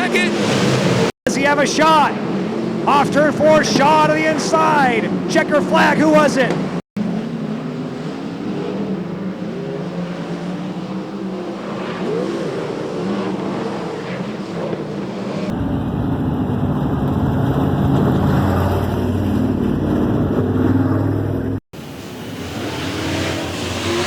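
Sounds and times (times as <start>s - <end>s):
race car engines: 0.0s - 24.0s
deep engine rumble: 14.9s - 22.6s.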